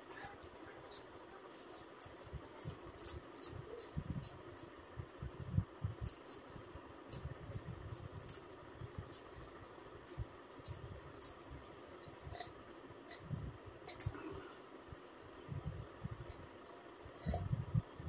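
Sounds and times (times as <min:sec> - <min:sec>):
faint background hum: 0:00.0 - 0:18.0
person chewing food: 0:00.2 - 0:04.8, 0:07.9 - 0:14.5.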